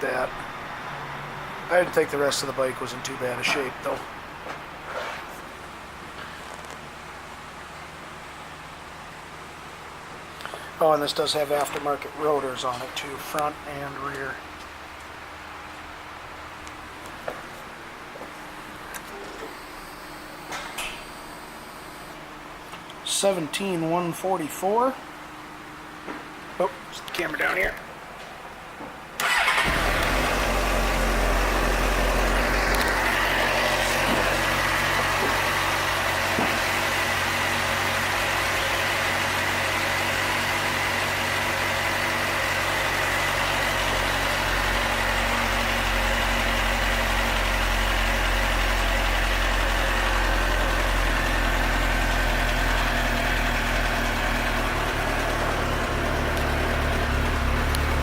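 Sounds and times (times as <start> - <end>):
motorcycle engine idling: 29.2 - 37.5, 42.9 - 58.0
motorcycle engine starting: 29.2 - 38.0, 40.1 - 58.0.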